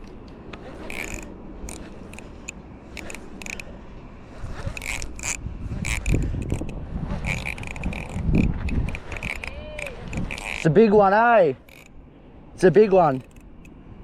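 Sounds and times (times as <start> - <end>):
fishing reel clicking: 0.8 - 3.7, 4.6 - 12.0, 13.0 - 13.8.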